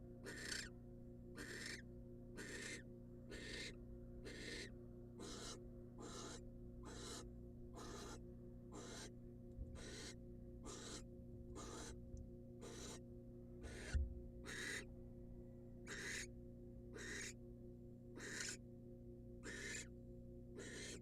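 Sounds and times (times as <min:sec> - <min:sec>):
low electrical hum: 0:00.0 - 0:21.0
barn owl hissing calls: 0:00.2 - 0:00.8, 0:01.4 - 0:01.8, 0:02.4 - 0:09.1, 0:09.8 - 0:12.0, 0:12.6 - 0:13.0, 0:13.6 - 0:14.9, 0:15.9 - 0:16.3, 0:16.9 - 0:17.4, 0:18.2 - 0:18.6, 0:19.4 - 0:19.9, 0:20.6 - 0:21.0.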